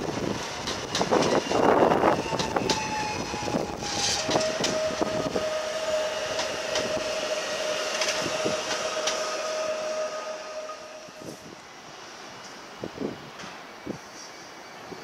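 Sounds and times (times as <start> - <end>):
train high whine: 0.0 - 15.0
wheels clicking over rail joints: 0.4 - 1.6, 2.2 - 5.0, 6.3 - 7.2, 7.8 - 9.4.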